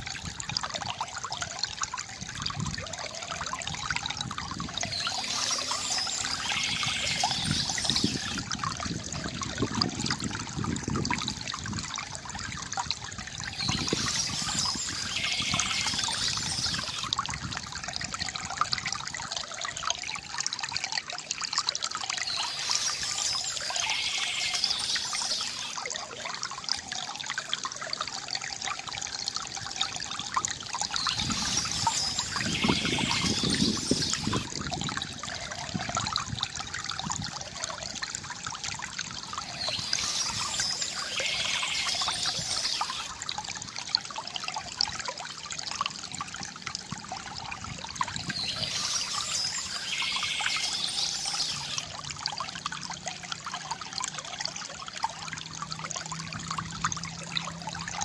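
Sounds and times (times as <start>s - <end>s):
fountain water trickling: 0.0s - 58.0s
bird chirping: 4.9s - 8.4s, 13.6s - 17.0s, 22.3s - 25.8s, 30.9s - 34.4s, 39.4s - 43.1s, 48.2s - 51.8s.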